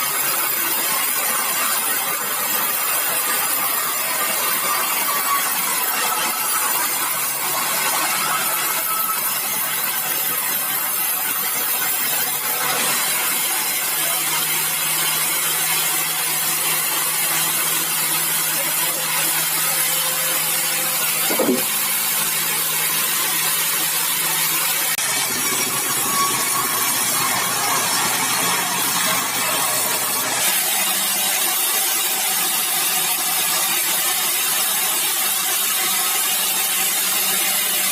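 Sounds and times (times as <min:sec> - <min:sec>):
saw cutting hardwood: 0:00.0 - 0:37.9
short knock: 0:21.3 - 0:21.7.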